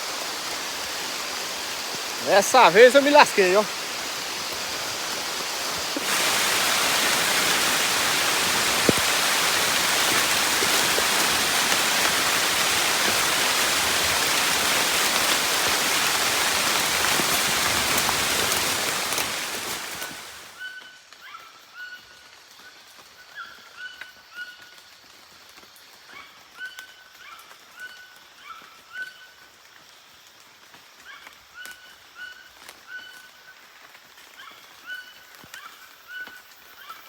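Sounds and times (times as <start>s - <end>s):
heavy rain pouring: 0.0s - 20.6s.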